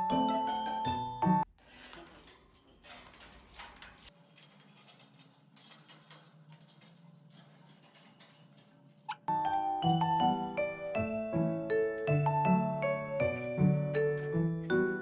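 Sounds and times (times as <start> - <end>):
background music: 0.0 - 1.5, 9.3 - 15.0
parrot clicks and scratching: 2.8 - 9.2.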